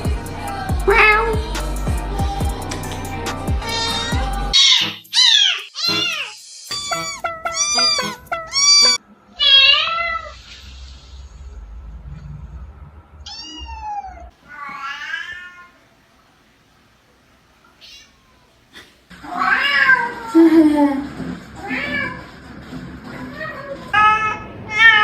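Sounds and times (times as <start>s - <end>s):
cat meowing: 0.9s - 1.3s, 3.6s - 10.4s, 13.3s - 15.8s, 17.8s - 18.5s, 19.3s - 20.4s, 23.3s - 25.0s.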